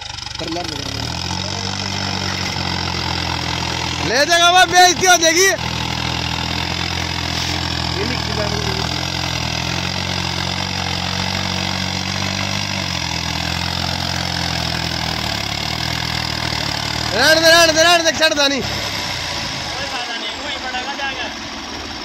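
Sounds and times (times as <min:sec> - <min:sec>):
diesel tractor engine running: 0:00.0 - 0:22.0.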